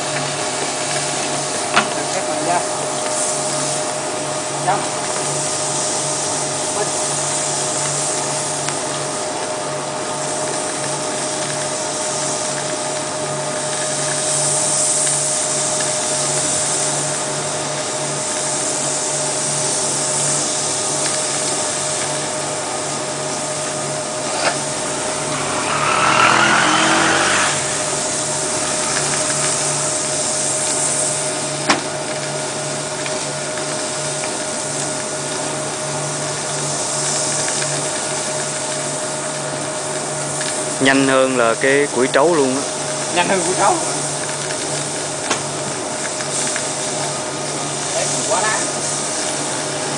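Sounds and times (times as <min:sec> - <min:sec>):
briquette press machine humming: 0:20.7 - 0:34.7
loud rush of noise: 0:23.1 - 0:30.7.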